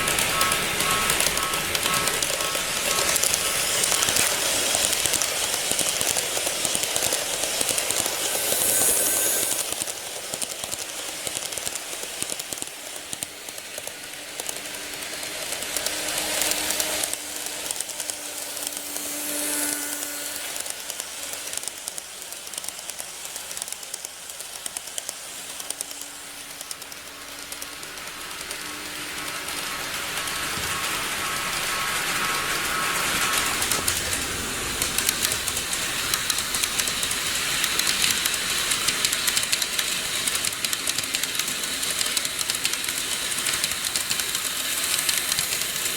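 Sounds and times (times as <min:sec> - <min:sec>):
model train wheels clicking on rail: 0:00.0 - 0:45.9
faint motor hum: 0:14.4 - 0:21.7.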